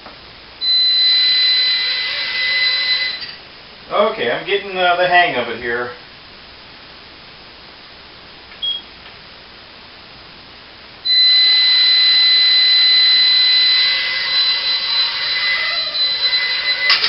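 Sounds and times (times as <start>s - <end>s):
quadcopter motors whining: 0.7s - 3.2s, 11.8s - 17.0s
short beep: 8.6s - 8.9s.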